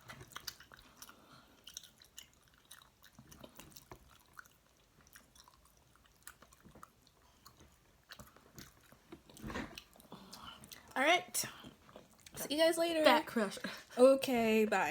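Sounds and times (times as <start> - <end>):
mouth clicks and smacks: 0.0 - 11.0
person chewing: 0.0 - 11.0, 11.6 - 12.4.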